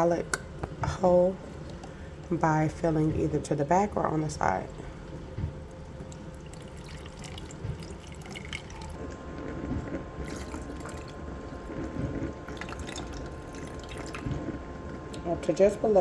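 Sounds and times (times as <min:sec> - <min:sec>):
water trickling and dripping: 0:05.5 - 0:09.0, 0:10.2 - 0:14.4.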